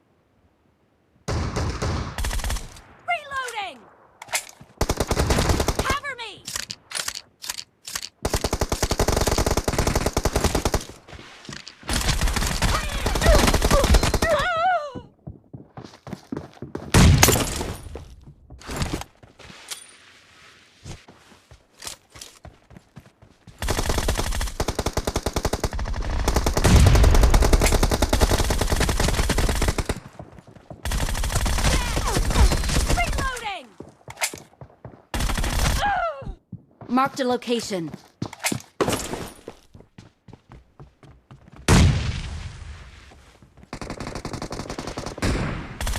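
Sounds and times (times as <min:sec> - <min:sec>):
video game automatic gunfire: 0:23.6 - 0:30.0.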